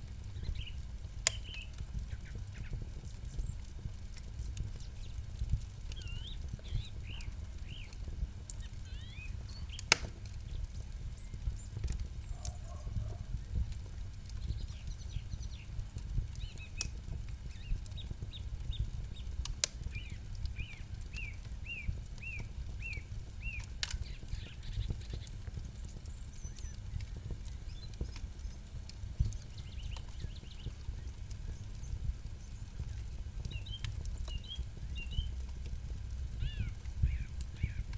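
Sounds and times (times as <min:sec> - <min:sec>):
campfire crackling and popping: 0:00.0 - 0:37.9
faint bird chirps: 0:05.9 - 0:08.0, 0:08.6 - 0:09.8, 0:36.4 - 0:37.8.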